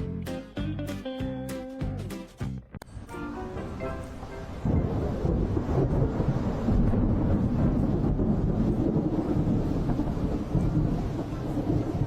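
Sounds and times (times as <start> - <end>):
rain: 2.9 - 12.0
low rumbling thunder: 4.4 - 12.0.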